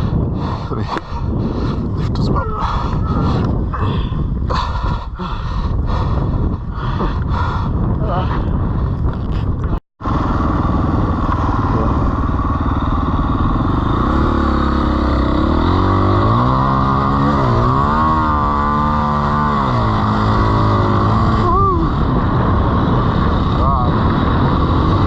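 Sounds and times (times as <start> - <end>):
dirt bike engine revving: 10.0 - 25.0.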